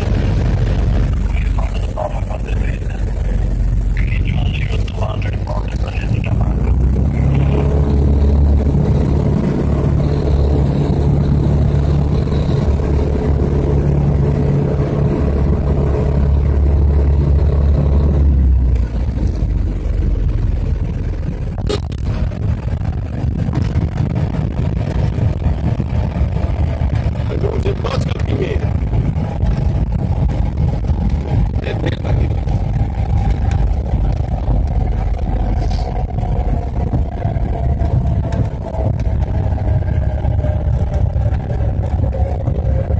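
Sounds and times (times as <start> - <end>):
aircraft engine rumble: 0.0 - 42.9.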